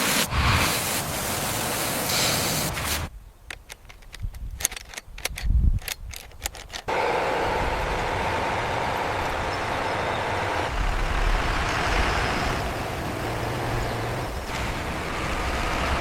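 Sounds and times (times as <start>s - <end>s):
truck engine rumbling: 6.2s - 16.0s.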